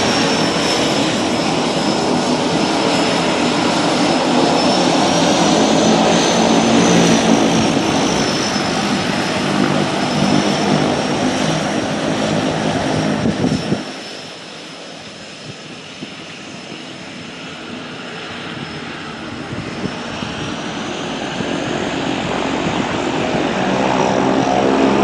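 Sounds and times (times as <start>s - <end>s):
helicopter rotor thrum: 0.0s - 14.3s
helicopter turbine whine: 0.0s - 25.0s.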